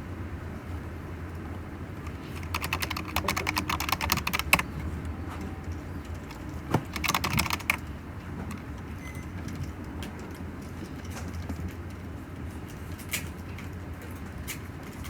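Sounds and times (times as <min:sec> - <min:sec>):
computer keyboard typing: 0:02.0 - 0:04.9, 0:05.7 - 0:08.7.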